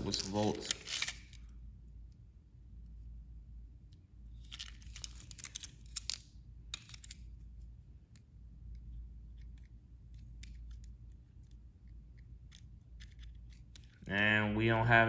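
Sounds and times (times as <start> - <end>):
plastic toy scraping and clicks: 0.0 - 1.4, 4.5 - 7.2, 12.2 - 14.1.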